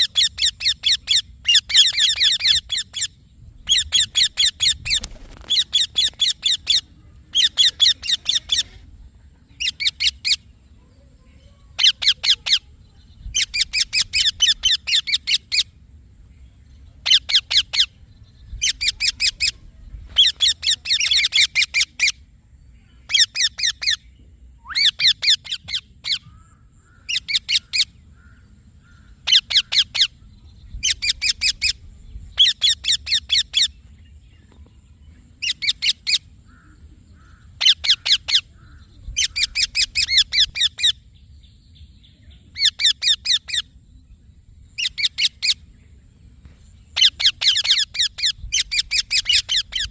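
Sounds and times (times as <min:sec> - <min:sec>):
parakeet chattering calls: 0:00.0 - 0:08.8, 0:09.6 - 0:10.4, 0:11.7 - 0:12.7, 0:13.3 - 0:15.7, 0:17.0 - 0:18.0, 0:18.6 - 0:19.6, 0:20.2 - 0:22.2, 0:23.1 - 0:24.0, 0:24.6 - 0:30.2, 0:32.4 - 0:33.8, 0:35.4 - 0:41.0, 0:42.6 - 0:43.7, 0:44.8 - 0:45.6, 0:47.0 - 0:49.9.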